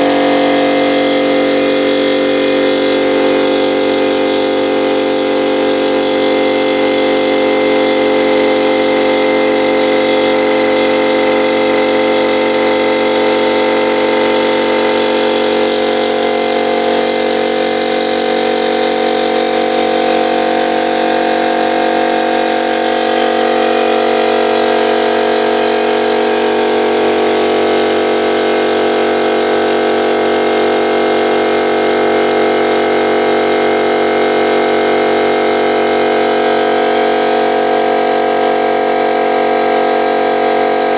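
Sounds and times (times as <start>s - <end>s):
air compressor running: 0.0s - 40.9s.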